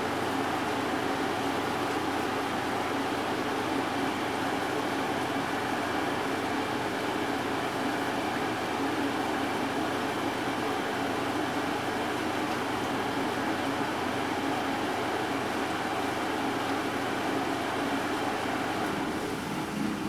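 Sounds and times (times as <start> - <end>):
air conditioner fan humming: 0.0 - 20.0
heavy rain outside: 16.6 - 20.0.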